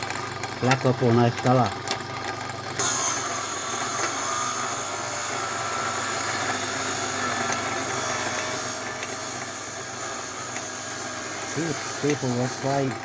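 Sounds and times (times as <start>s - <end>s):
grinding wheel hissing: 2.8s - 13.0s.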